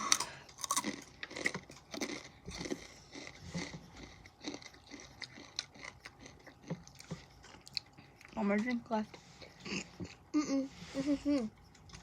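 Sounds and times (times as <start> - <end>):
tortilla chips crunching: 0.0 - 8.4.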